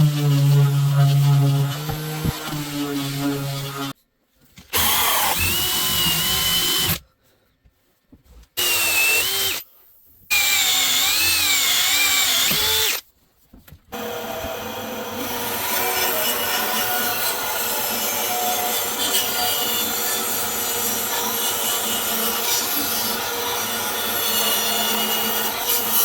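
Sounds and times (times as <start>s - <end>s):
power drill whining into wood: 4.7s - 7.0s, 8.6s - 9.6s, 10.3s - 13.0s.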